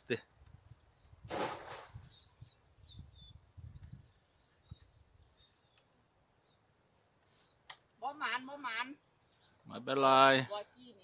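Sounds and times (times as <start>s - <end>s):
high downward-sliding bird chirps: 0.8s - 6.6s.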